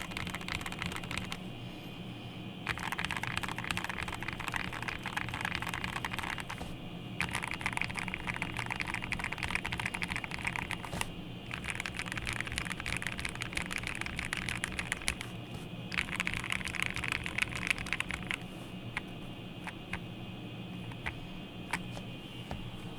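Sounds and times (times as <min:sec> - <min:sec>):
mechanical keyboard typing: 0:00.0 - 0:01.4, 0:02.7 - 0:06.6, 0:07.2 - 0:15.3, 0:15.9 - 0:18.4.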